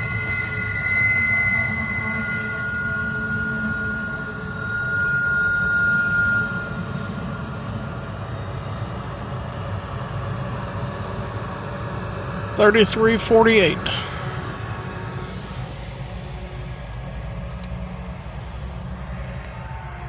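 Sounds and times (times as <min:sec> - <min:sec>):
thin wheel squeal: 0:00.0 - 0:08.5
steel wheels rumbling on rail: 0:13.9 - 0:20.0.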